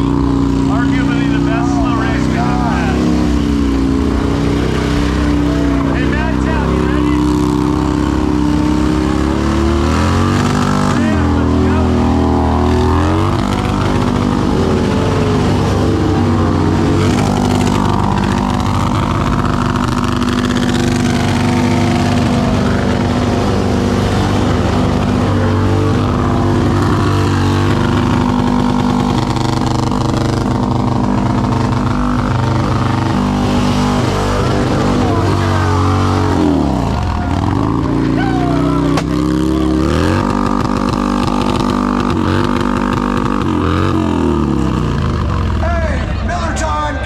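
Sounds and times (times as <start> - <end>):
motorcycle engines running: 0.0 - 47.0
people talking: 0.6 - 3.5, 4.5 - 8.0, 10.2 - 18.1, 33.4 - 39.1, 45.6 - 47.0.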